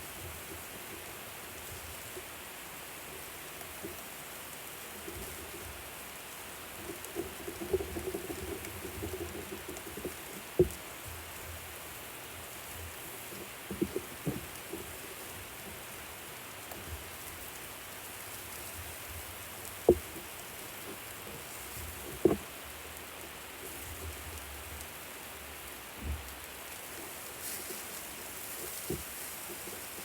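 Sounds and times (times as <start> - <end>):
food sizzling on grill: 9.8 - 30.0.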